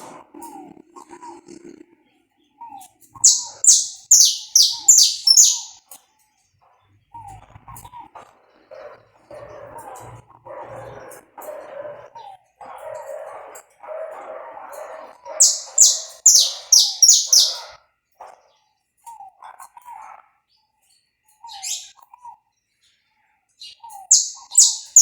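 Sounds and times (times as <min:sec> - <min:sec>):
finch singing: 0:03.2 - 0:05.8, 0:15.3 - 0:17.7, 0:21.5 - 0:21.9, 0:24.1 - 0:25.0.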